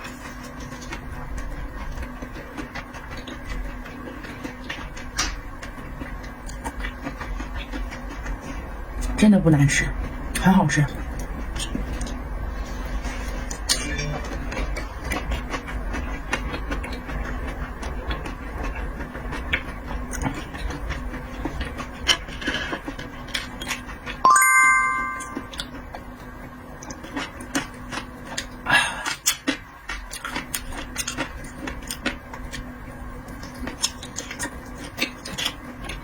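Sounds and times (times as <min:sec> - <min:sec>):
chewing clicks and mouth noises: 0:00.0 - 0:09.2, 0:10.3 - 0:12.2, 0:13.1 - 0:24.2, 0:26.7 - 0:36.0
low steady hum: 0:24.1 - 0:25.9
chime-like ding: 0:24.3 - 0:25.6.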